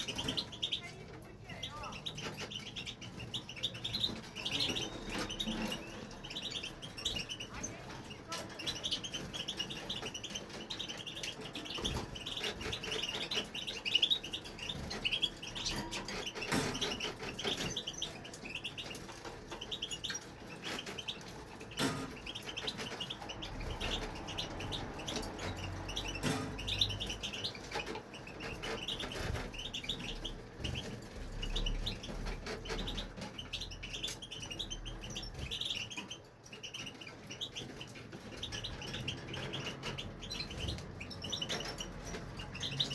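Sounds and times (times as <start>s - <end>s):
finch twittering song: 0.0s - 42.9s.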